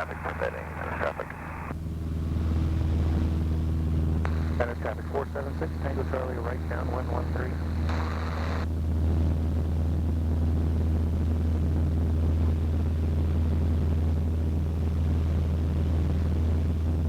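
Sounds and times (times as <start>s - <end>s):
aircraft engine droning: 0.0s - 9.8s.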